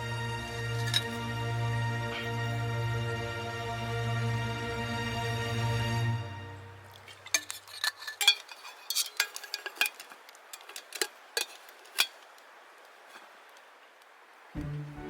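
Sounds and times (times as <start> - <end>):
campfire crackling: 0.0 - 3.2, 6.4 - 15.0.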